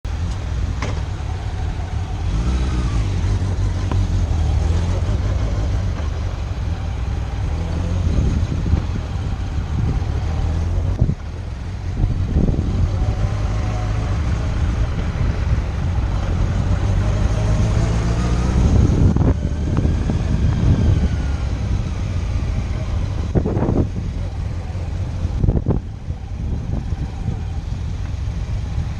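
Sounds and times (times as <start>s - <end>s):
motorcycle engine running: 0.1s - 28.9s.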